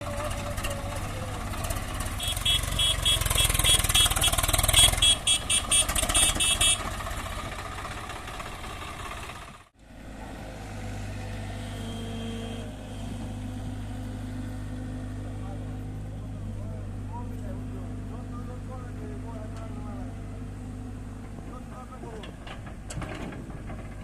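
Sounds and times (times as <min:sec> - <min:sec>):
diesel machinery engine running: 0:00.0 - 0:24.0.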